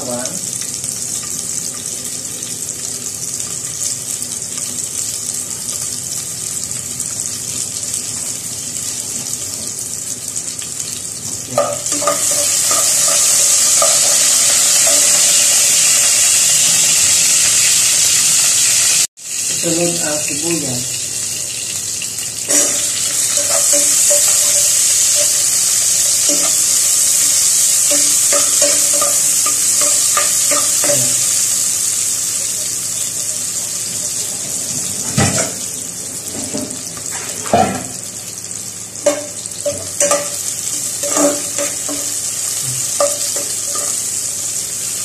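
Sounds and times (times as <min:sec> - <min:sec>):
onions sizzling in hot oil: 0:00.0 - 0:45.0
metal spoon knocking a pot: 0:29.8 - 0:31.2.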